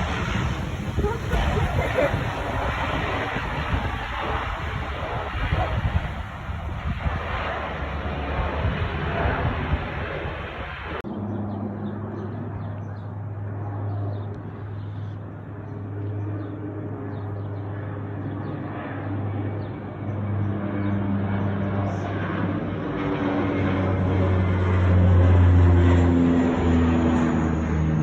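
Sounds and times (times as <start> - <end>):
wind-like noise: 0.0 - 11.0
aircraft engine droning: 0.0 - 28.0.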